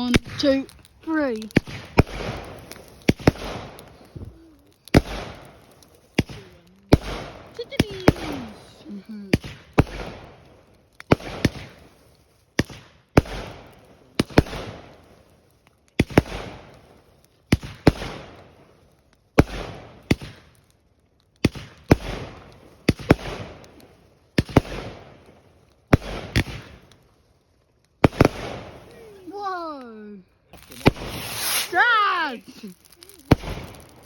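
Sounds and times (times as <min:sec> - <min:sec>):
fireworks banging: 0:00.0 - 0:10.4, 0:28.0 - 0:34.0
fireworks crackling: 0:00.0 - 0:34.0.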